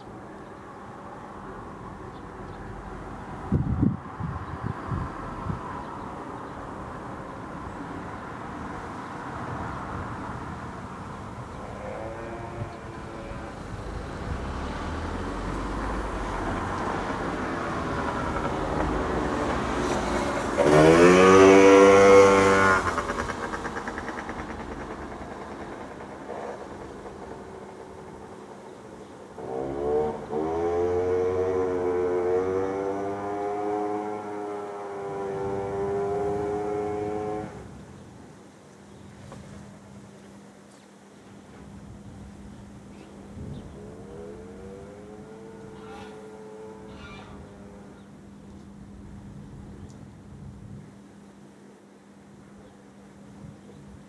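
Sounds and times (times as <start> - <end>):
vehicle approaching: 0.0 - 38.1, 41.5 - 50.0
vehicle engine accelerating past: 8.0 - 26.9, 29.4 - 37.8, 43.3 - 48.1.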